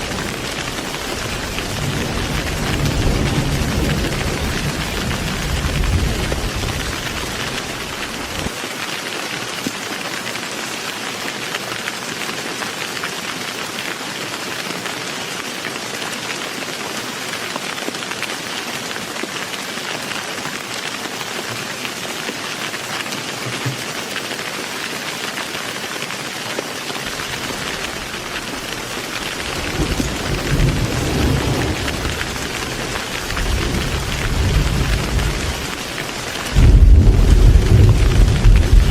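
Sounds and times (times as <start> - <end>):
thunder rumbling: 0.0 - 8.5, 27.1 - 38.9
heavy rain hissing: 0.0 - 38.9.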